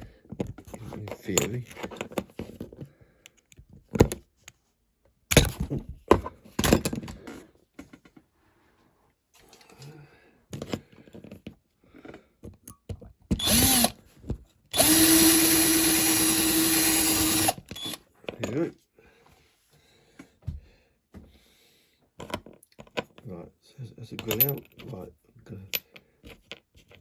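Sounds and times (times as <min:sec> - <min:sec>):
small electric drill running: 0:13.4 - 0:14.0, 0:14.7 - 0:18.0.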